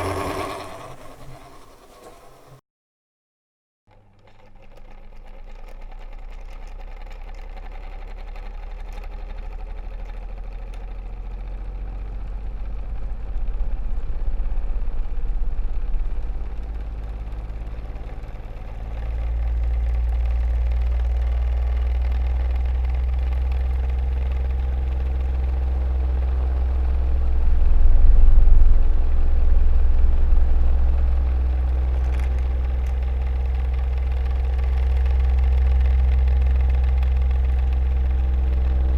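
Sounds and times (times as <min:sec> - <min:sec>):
electric fan humming: 0:00.0 - 0:02.6.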